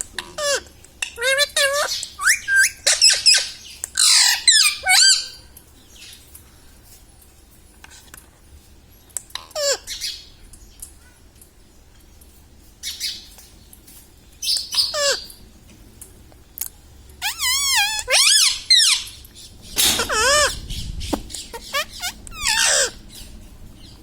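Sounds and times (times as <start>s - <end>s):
parrot squawking: 1.2s - 5.4s, 17.2s - 19.2s, 19.9s - 20.7s, 21.3s - 23.2s.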